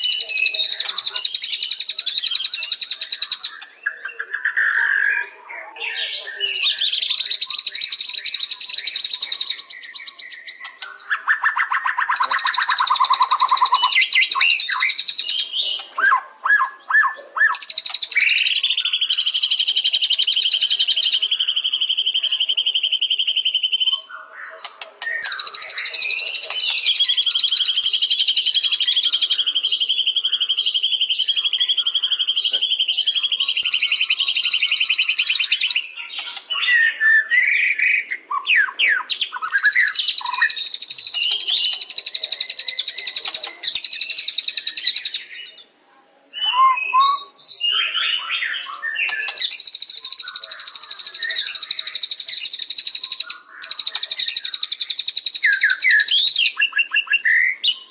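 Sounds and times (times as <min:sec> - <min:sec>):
bird rapid chattering song: 0:00.0 - 0:45.8, 0:46.4 - 0:57.9.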